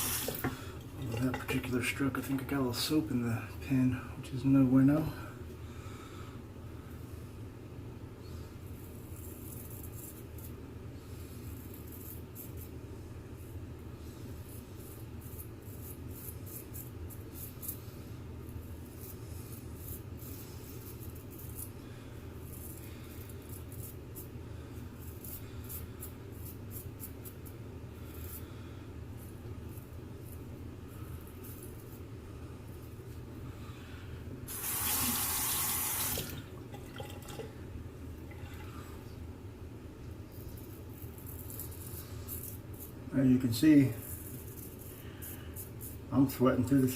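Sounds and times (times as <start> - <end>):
razor scraping stubble: 14.4 - 17.9.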